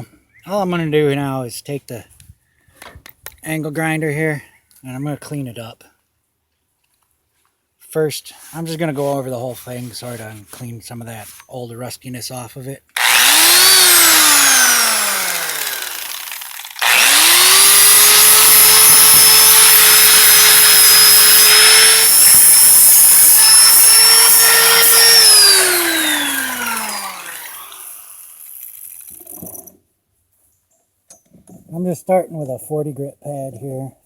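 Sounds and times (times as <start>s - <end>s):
angle grinder sanding steel: 13.0s - 29.1s.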